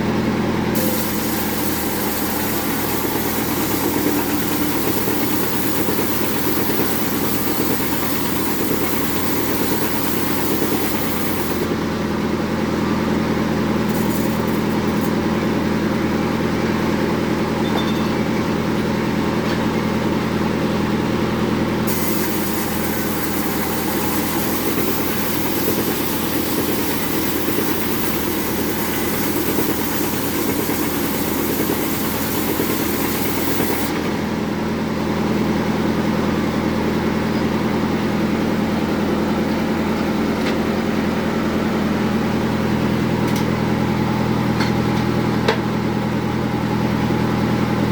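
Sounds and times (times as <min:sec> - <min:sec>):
bandsaw mill cutting wood: 0:00.0 - 0:17.4, 0:18.5 - 0:44.0
low machine hum: 0:00.0 - 0:25.2.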